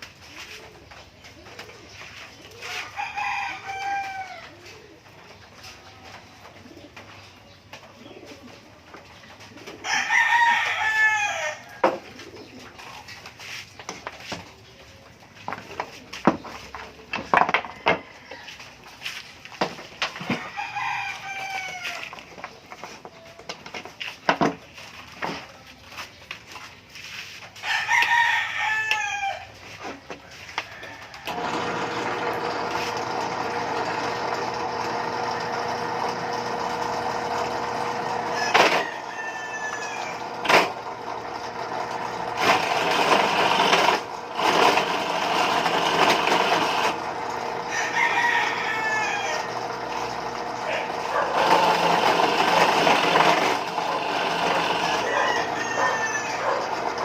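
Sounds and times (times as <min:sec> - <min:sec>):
rooster crowing: 0:02.6 - 0:04.5, 0:09.8 - 0:12.0, 0:17.6 - 0:18.7, 0:20.4 - 0:22.2, 0:27.6 - 0:29.6, 0:30.3 - 0:31.9, 0:38.0 - 0:40.4, 0:47.5 - 0:49.9, 0:53.8 - 0:57.0.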